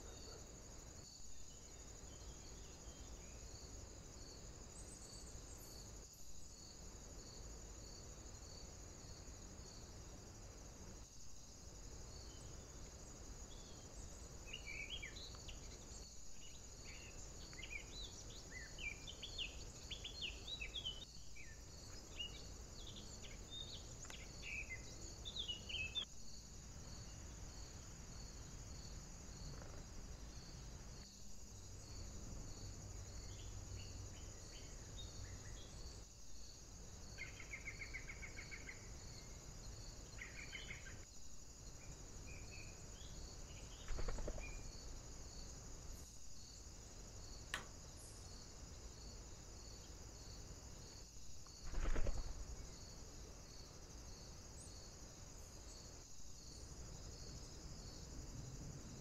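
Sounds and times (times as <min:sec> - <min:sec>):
high insect-like chirring: 0:12.1 - 0:41.1, 0:41.7 - 0:57.9.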